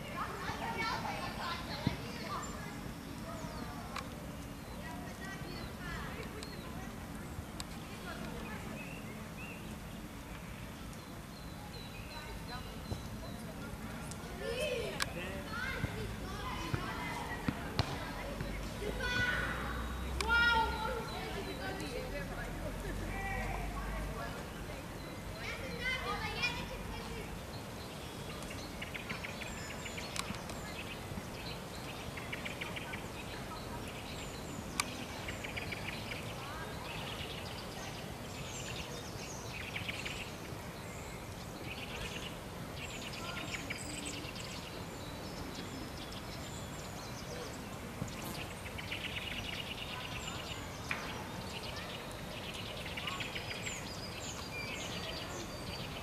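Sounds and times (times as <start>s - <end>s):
songbirds chirping: 0.0s - 56.0s
steady background hiss: 0.0s - 56.0s.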